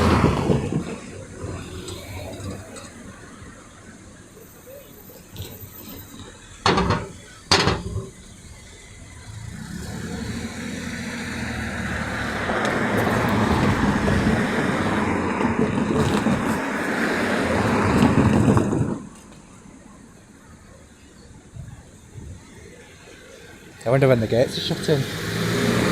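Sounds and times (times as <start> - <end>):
vehicle passing by: 9.3 - 18.5, 24.0 - 25.9.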